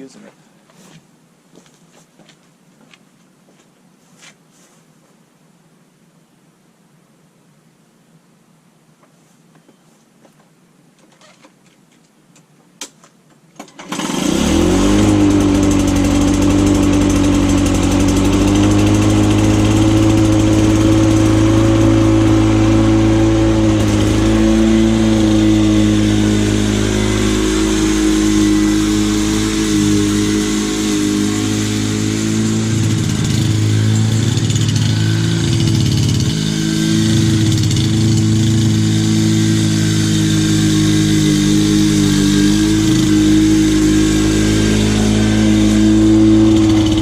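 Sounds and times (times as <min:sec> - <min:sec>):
lawn mower engine running: 0:13.6 - 0:47.0.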